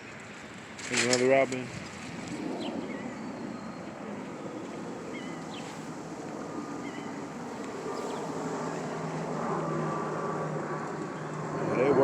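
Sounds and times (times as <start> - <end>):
distant engine rumble: 0.0 - 12.0
faint bird chirps: 5.1 - 5.8.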